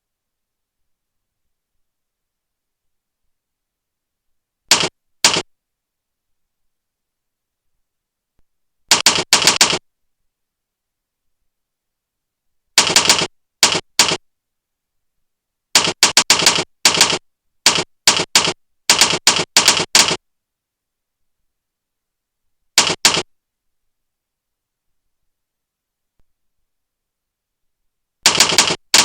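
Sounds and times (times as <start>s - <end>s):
keyboard click sound effects: 4.7s - 5.4s.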